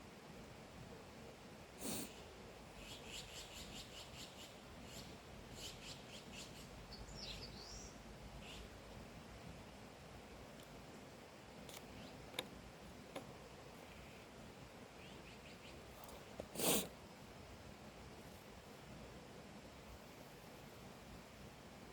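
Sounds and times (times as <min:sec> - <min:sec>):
songbird chirping: 0:02.0 - 0:09.0, 0:11.7 - 0:12.5, 0:13.8 - 0:16.4.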